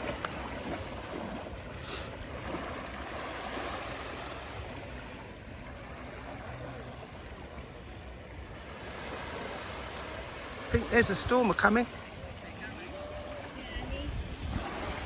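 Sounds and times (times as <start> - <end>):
water splash: 0.0 - 5.0
sea water washing in surf: 0.0 - 15.0.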